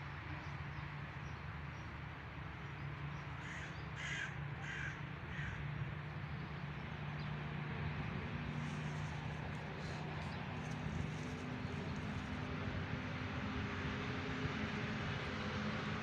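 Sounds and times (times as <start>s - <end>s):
crow cawing: 3.4s - 5.6s.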